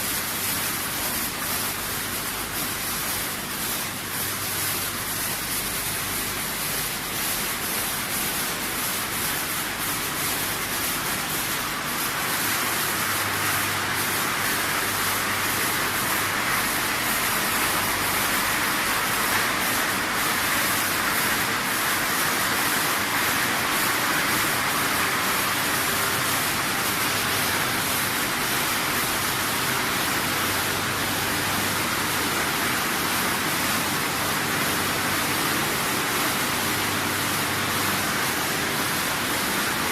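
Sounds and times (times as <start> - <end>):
continuous rushing noise: 0.0 - 39.9.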